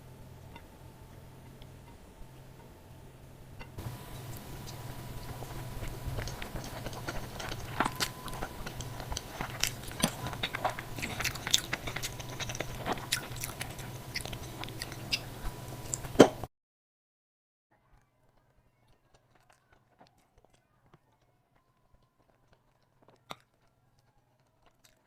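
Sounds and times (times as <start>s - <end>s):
person chewing: 3.7s - 16.4s, 18.3s - 25.0s.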